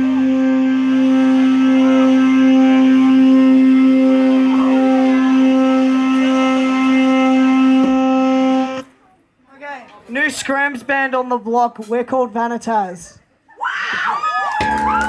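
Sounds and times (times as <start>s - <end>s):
electric guitar droning note: 0.0s - 8.9s.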